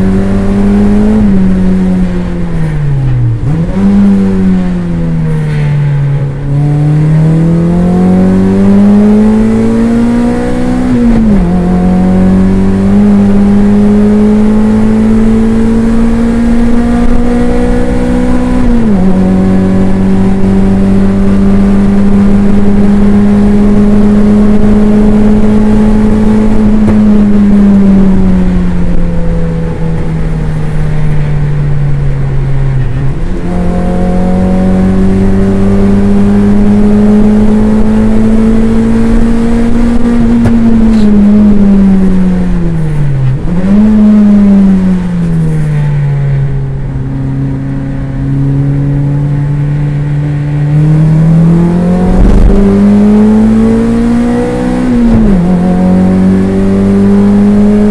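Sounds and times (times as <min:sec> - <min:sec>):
race car engine accelerating: 0:00.0 - 0:57.9.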